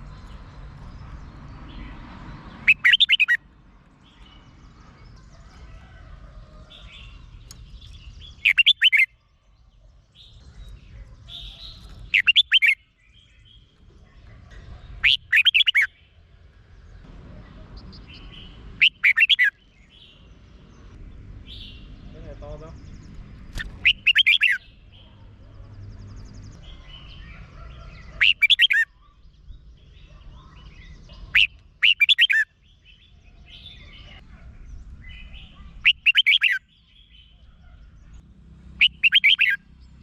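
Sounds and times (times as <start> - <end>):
bulbul warbling song: 2.6 - 3.5, 6.8 - 9.2, 10.2 - 13.4, 14.9 - 16.2, 17.5 - 20.2, 23.5 - 25.1, 26.7 - 29.2, 30.3 - 34.2, 35.0 - 37.5, 38.7 - 39.8
faint bird chirps: 6.7 - 16.2, 21.5 - 38.2, 38.8 - 39.7.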